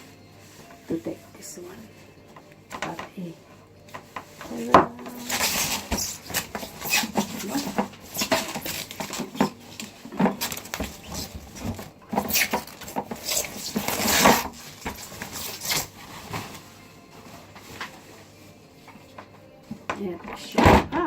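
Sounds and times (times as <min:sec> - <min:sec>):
plastic and metal parts clattering: 0:03.9 - 0:16.8
packaging rustling: 0:03.9 - 0:19.4.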